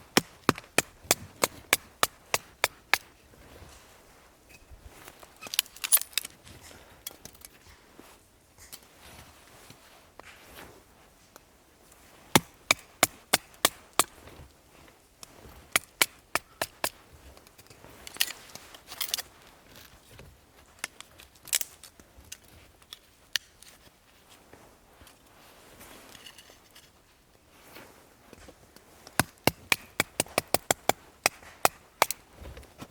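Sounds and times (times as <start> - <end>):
firewood being chopped: 0.0 - 3.2, 12.3 - 14.4, 15.2 - 17.0, 29.0 - 32.9.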